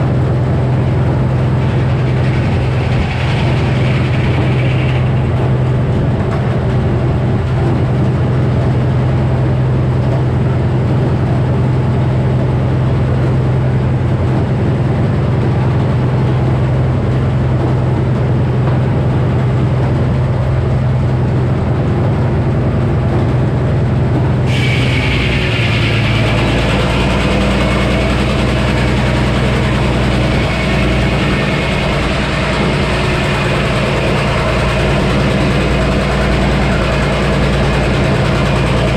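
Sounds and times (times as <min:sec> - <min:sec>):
sawmill engine drone: 0:00.0 - 0:38.9
hiss: 0:24.5 - 0:28.2.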